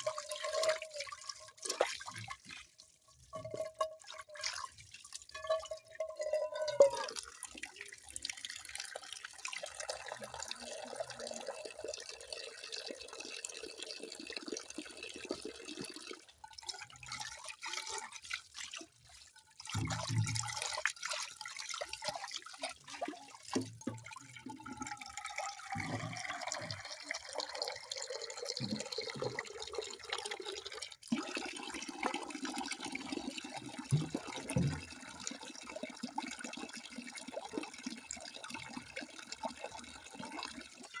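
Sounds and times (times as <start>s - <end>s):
water dripping and gurgling: 0.0s - 41.0s
tap water running into sink: 19.6s - 21.2s, 21.8s - 35.6s.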